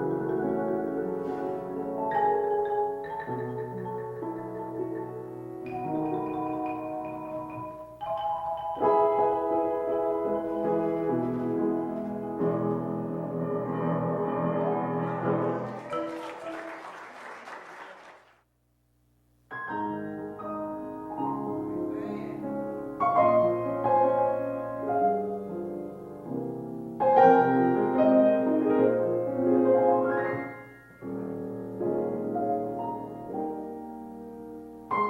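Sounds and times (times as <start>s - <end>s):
piano playing chords: 0.0s - 16.8s, 19.5s - 35.0s
instrumental music: 0.0s - 16.9s.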